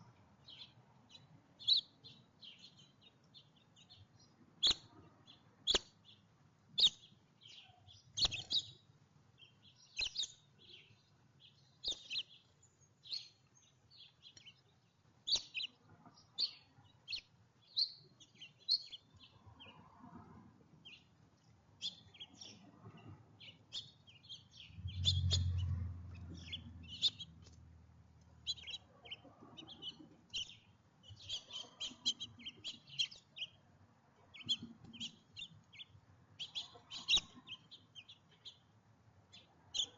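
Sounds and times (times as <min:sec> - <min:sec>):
small songbirds chirping: 0:00.0 - 0:20.2, 0:20.8 - 0:39.9
brief low rumble: 0:24.6 - 0:27.4.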